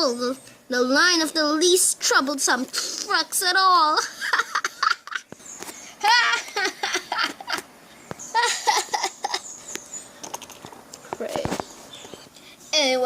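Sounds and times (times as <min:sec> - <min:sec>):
person laughing mockingly: 0:04.0 - 0:05.3, 0:06.0 - 0:07.7, 0:08.3 - 0:09.5.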